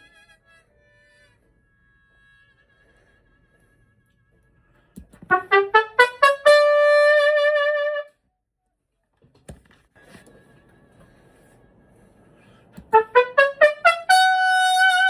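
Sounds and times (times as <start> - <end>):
trumpet playing: 5.2 - 8.2, 12.9 - 15.0.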